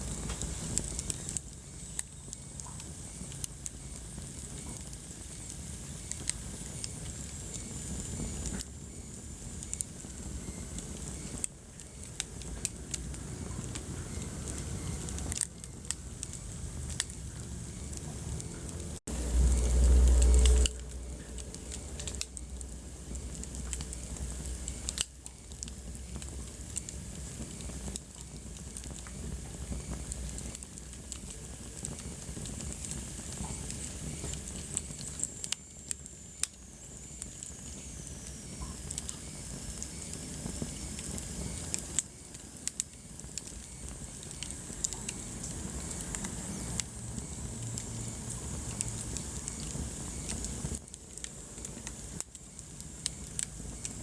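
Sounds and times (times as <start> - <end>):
steady low hiss: 0.0 - 54.0
wood fire crackling and popping: 0.0 - 54.0.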